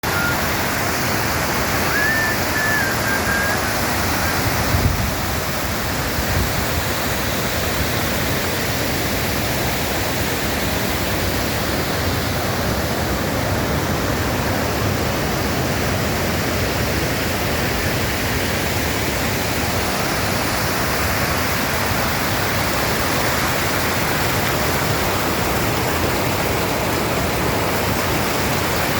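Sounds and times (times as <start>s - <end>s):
water rushing: 0.0s - 28.9s
short high whistle-like tone: 0.1s - 0.4s, 1.8s - 4.4s.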